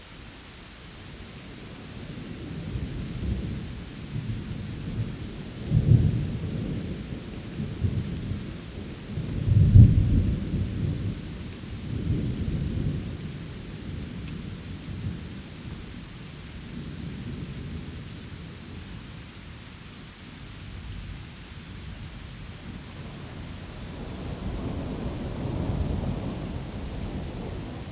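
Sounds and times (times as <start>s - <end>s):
steady rain: 0.0s - 27.9s
thunder rolling: 22.6s - 27.9s.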